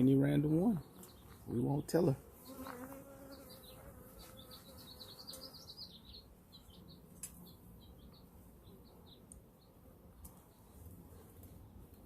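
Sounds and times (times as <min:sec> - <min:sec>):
bird chirping: 0:00.0 - 0:11.2
bee buzzing: 0:02.2 - 0:06.0.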